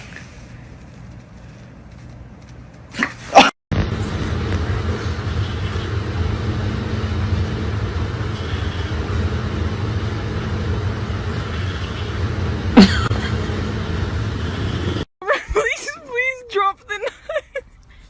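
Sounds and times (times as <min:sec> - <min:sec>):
low engine rumble: 0:03.7 - 0:15.1.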